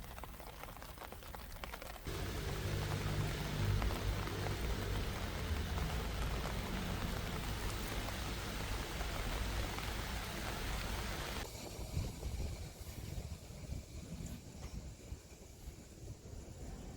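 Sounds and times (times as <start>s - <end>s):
steady rain falling: 0.0s - 14.0s
low rumble: 2.1s - 14.4s.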